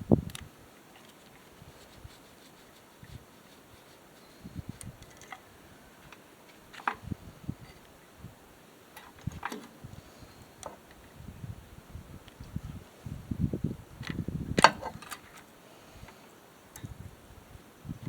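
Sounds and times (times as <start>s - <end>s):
tools and parts clicking: 5.0s - 5.4s.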